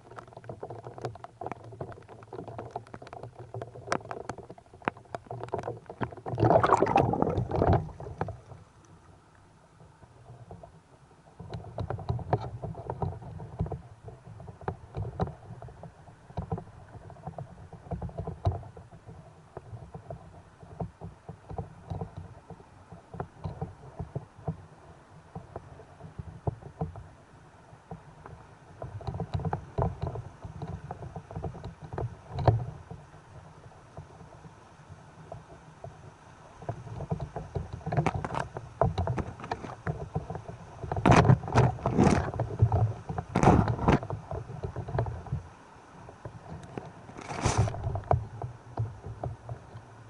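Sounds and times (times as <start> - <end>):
sea water sloshing and knocking: 0.0 - 50.0.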